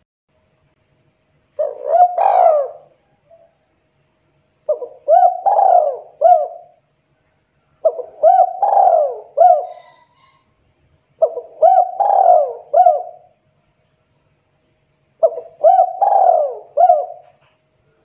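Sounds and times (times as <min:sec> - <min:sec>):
dove cooing: 0:01.5 - 0:03.6, 0:04.7 - 0:06.8, 0:07.8 - 0:10.5, 0:11.2 - 0:13.4, 0:15.2 - 0:17.5.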